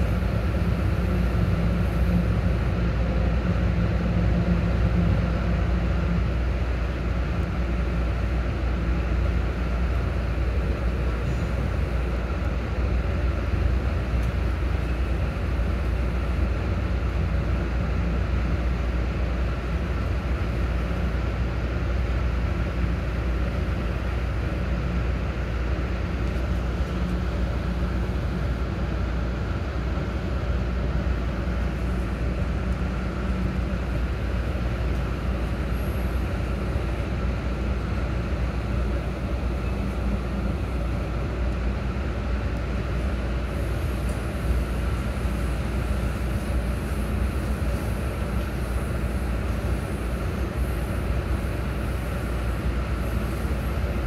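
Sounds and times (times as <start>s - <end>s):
train rumbling from inside: 0.0s - 54.0s.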